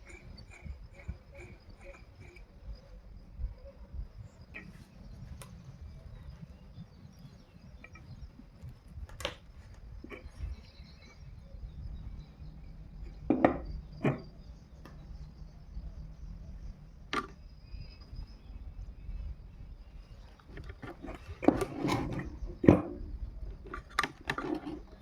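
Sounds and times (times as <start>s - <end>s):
hard objects knocking and clicking: 13.0s - 15.0s, 17.1s - 17.4s.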